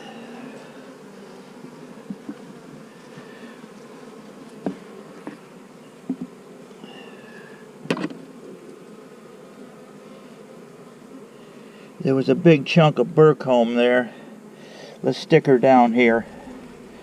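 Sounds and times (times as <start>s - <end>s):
honeybees buzzing: 0.0s - 17.0s
knocks and clicks of hive parts: 6.0s - 6.4s, 7.8s - 8.2s.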